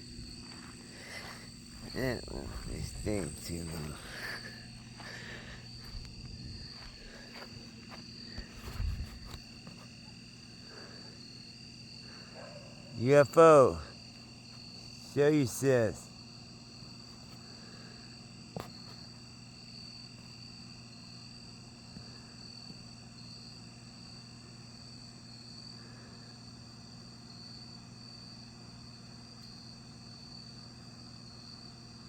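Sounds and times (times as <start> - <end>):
low steady hum: 0.0 - 18.1
crickets trilling: 0.0 - 32.0.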